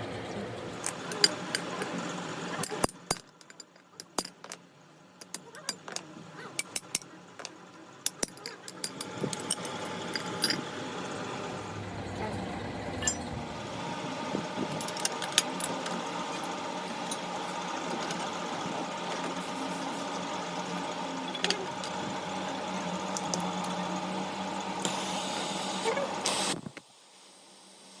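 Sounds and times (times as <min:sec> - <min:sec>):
workshop machine humming: 0:00.0 - 0:03.1, 0:05.2 - 0:26.6.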